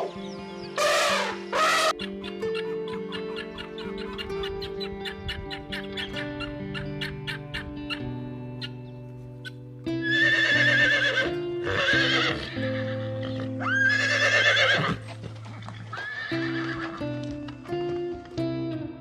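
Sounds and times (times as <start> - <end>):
background music: 0.0 - 19.0
horse whinnying: 0.8 - 2.0, 10.0 - 17.1.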